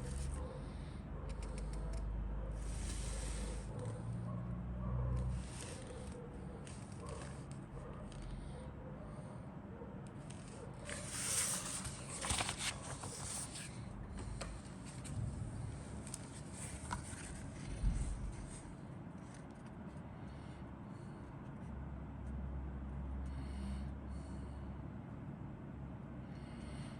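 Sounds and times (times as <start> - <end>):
packaging crinkling and rustling: 11.0 - 13.6.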